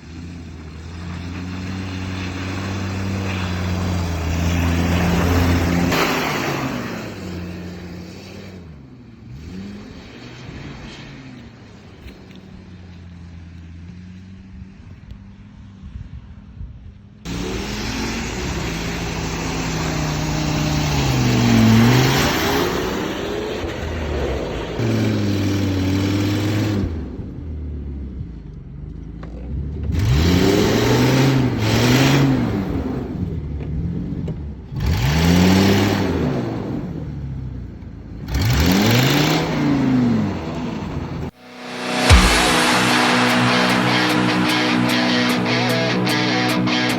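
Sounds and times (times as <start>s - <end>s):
engine revving: 0.0s - 11.0s, 17.3s - 27.2s, 29.9s - 33.3s, 34.8s - 37.0s, 38.2s - 46.9s.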